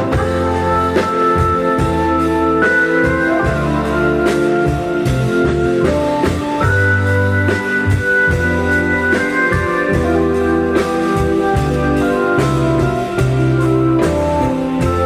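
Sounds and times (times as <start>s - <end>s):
organ sustained melody: 0.0s - 15.0s
slow steady drum beat: 0.0s - 15.0s
walking bass line: 0.0s - 15.0s.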